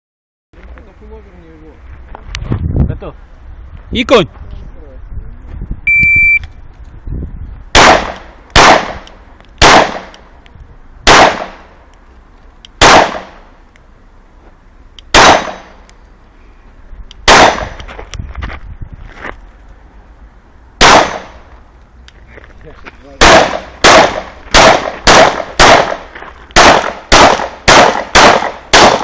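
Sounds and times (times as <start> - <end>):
shot timer beep: 5.9 - 6.5
pistol shots echoing: 7.8 - 9.0, 9.6 - 10.1, 11.1 - 11.7, 12.8 - 13.4, 15.1 - 15.8, 17.3 - 17.8, 20.8 - 21.4, 23.2 - 29.0.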